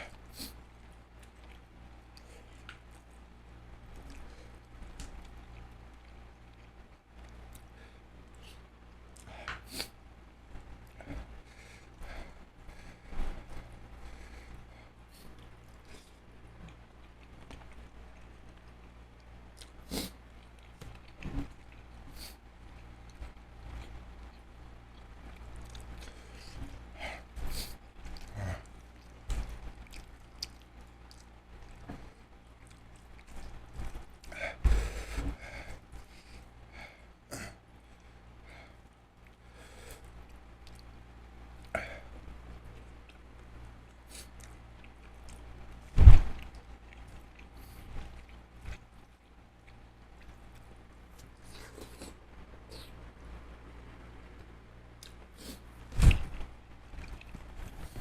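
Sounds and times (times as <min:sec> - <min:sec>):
person chewing and eating: 0:00.0 - 0:10.0, 0:13.6 - 0:36.6, 0:42.4 - 0:53.2, 0:54.4 - 0:58.0
loud thump: 0:46.0 - 0:46.3.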